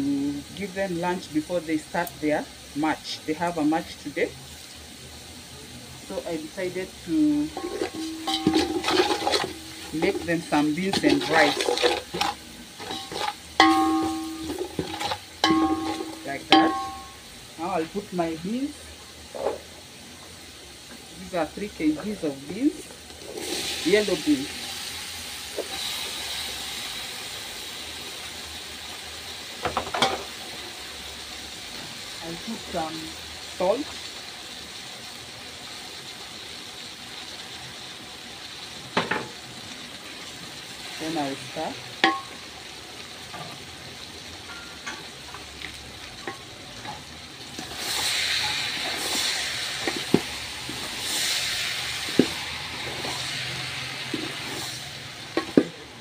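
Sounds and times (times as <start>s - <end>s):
beans sizzling in hot oil: 0.0s - 56.0s
wooden spoon stirring: 7.6s - 17.2s
spoon knocking against pot: 12.8s - 17.2s, 42.0s - 42.4s.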